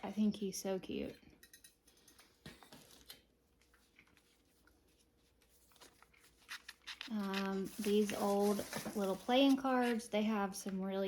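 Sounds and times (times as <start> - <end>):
objects being handled: 1.5 - 10.2.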